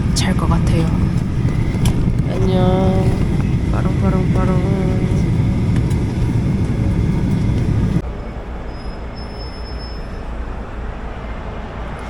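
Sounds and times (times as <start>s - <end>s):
airliner cabin rumble: 0.0s - 12.0s
background hum: 0.0s - 12.0s.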